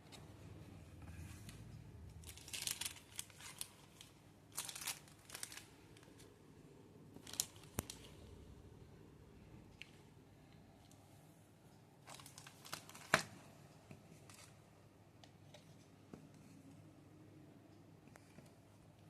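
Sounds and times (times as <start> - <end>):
plastic crinkling and rustling: 1.2 - 6.3, 7.2 - 8.2, 12.0 - 13.4.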